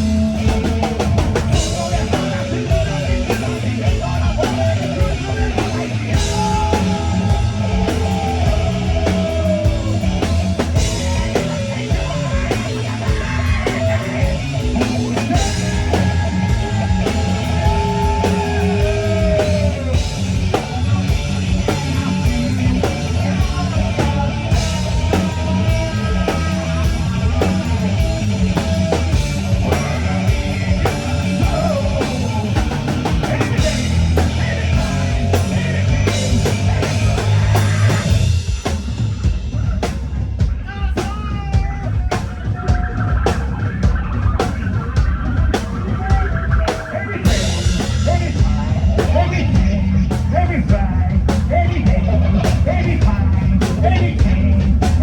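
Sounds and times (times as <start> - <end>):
drum kit beat: 0.0 - 55.0
rock band playing live: 0.0 - 55.0.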